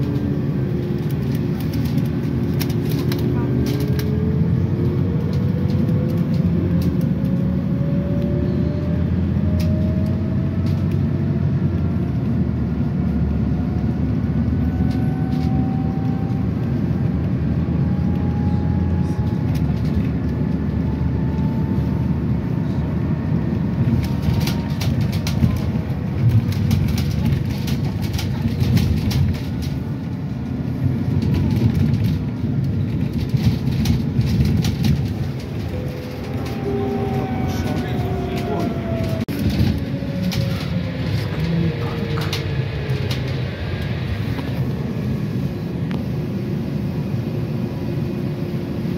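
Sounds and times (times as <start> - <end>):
bus running rumble: 0.0 - 48.9
drive whine rising in pitch: 35.6 - 41.4.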